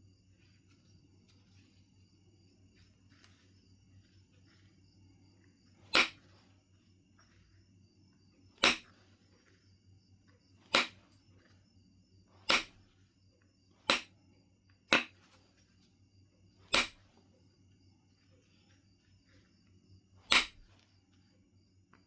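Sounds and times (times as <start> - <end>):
stone knapping clicks: 5.8 - 6.4, 8.6 - 9.0, 10.6 - 11.2, 12.4 - 12.9, 13.8 - 14.2, 16.6 - 17.2, 20.2 - 20.8.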